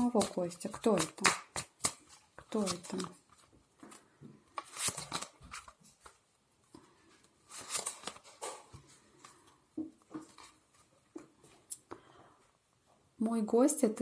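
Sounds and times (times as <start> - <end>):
cards being shuffled: 0.0 - 6.2, 7.3 - 10.9.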